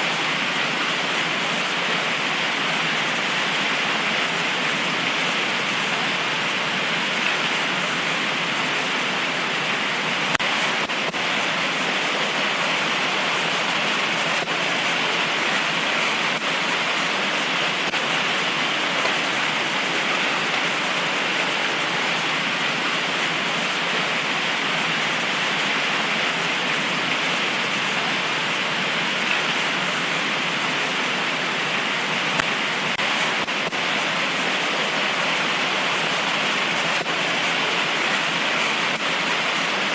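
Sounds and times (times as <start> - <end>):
heavy rain pouring: 0.0 - 39.9
faint ticks of raindrops: 10.3 - 11.5, 32.3 - 34.0.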